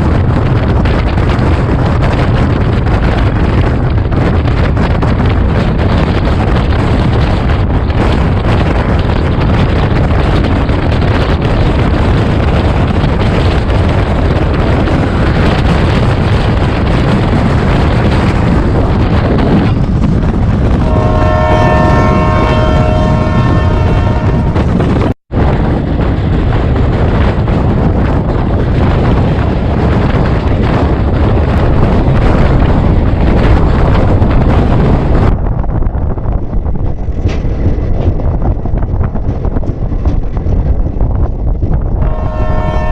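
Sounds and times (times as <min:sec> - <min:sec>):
train running at speed: 0:00.0 - 0:42.9
train horn blast: 0:20.8 - 0:24.7, 0:42.0 - 0:42.9.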